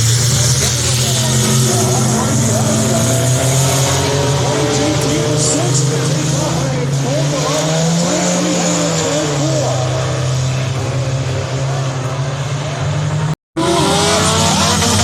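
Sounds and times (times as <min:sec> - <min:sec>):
race car engines at speed: 0:00.0 - 0:15.0.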